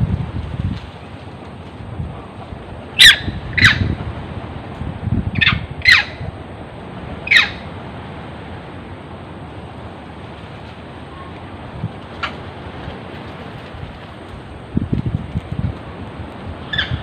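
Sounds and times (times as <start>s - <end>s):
monkey screaming: 3.0s - 3.8s, 5.4s - 6.2s, 7.2s - 7.6s, 16.7s - 17.0s.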